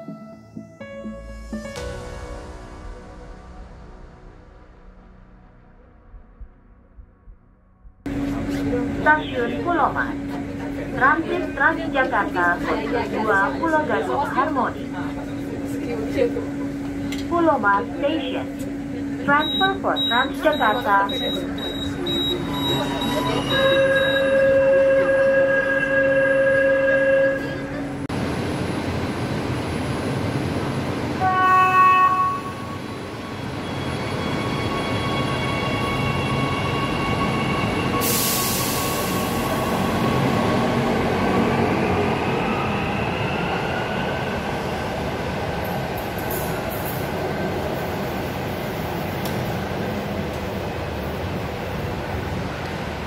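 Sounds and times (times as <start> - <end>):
short tonal signal: 19.4 - 27.8
train wheels rumbling on rail: 27.4 - 53.0.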